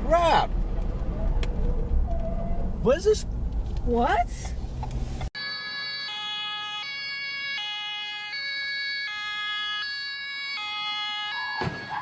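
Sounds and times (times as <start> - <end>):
two-tone emergency siren: 5.4 - 12.0.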